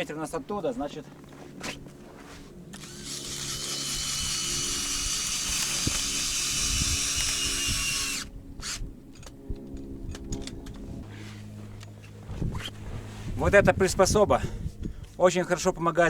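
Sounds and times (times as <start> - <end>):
cordless drill motor whining: 2.7 - 10.8.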